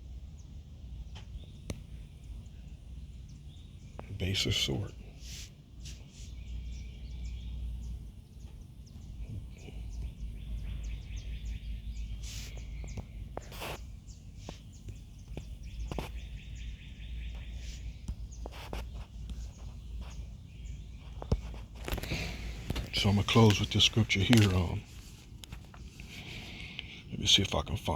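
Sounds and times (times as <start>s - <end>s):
low background rumble: 0.0s - 27.9s
faint high chirping: 5.8s - 25.0s.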